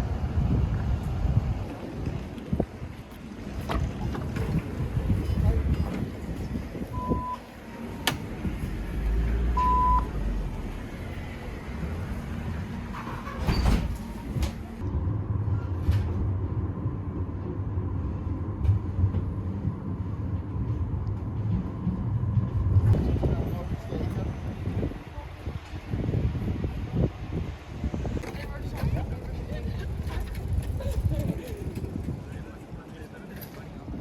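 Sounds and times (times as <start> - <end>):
vehicle rumble: 0.0 - 34.0
short electronic beeps: 9.6 - 10.1.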